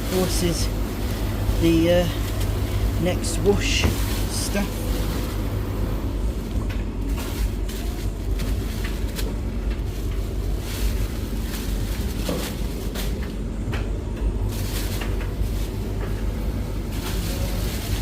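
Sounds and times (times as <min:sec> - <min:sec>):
steady low rumble: 0:00.0 - 0:18.0
cloth rustling: 0:07.0 - 0:13.3.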